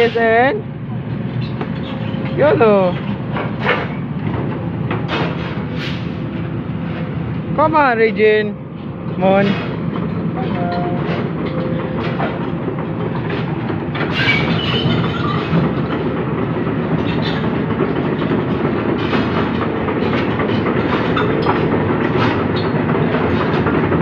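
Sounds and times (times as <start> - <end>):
heavy diesel machinery rumbling: 0.0 - 24.0
metallic clanks and knocks: 1.4 - 6.1, 9.3 - 16.2, 16.9 - 24.0.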